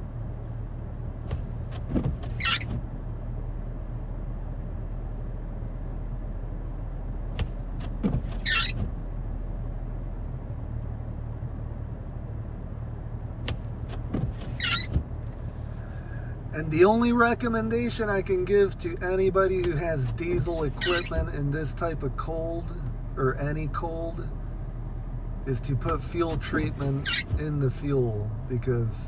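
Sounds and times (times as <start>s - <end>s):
vehicle engine idling: 0.0s - 29.0s
windshield wipers squeaky swish: 1.2s - 2.9s, 7.3s - 9.1s, 13.4s - 24.8s, 25.5s - 28.0s.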